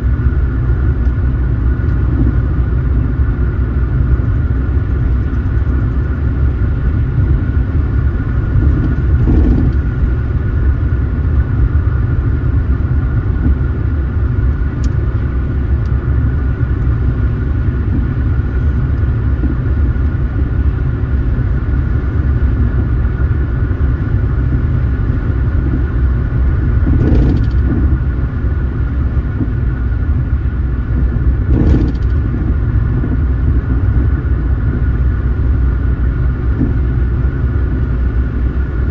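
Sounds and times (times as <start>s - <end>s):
road and tyre rumble: 0.0s - 38.9s.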